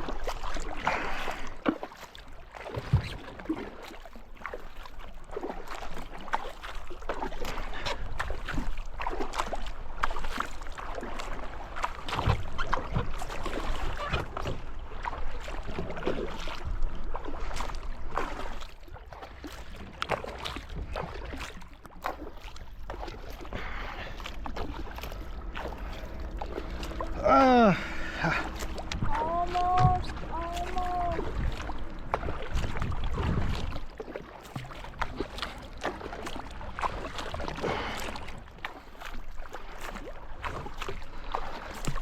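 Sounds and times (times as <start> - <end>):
paddle pulling through water: 0.0 - 42.0
water splashes and drips: 0.0 - 42.0.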